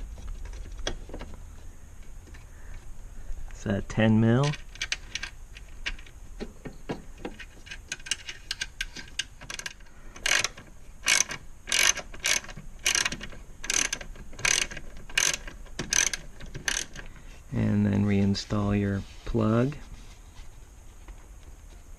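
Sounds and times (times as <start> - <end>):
hand ratchet clicking: 7.6 - 17.1.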